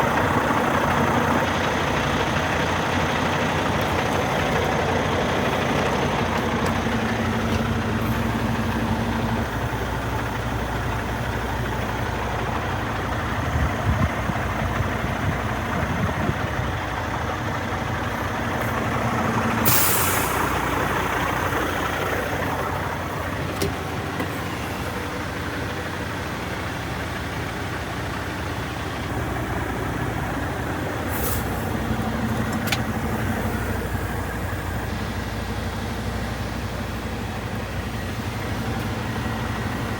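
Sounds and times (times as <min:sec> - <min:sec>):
diesel engine idling: 0:00.0 - 0:39.9
air hiss: 0:19.6 - 0:20.6.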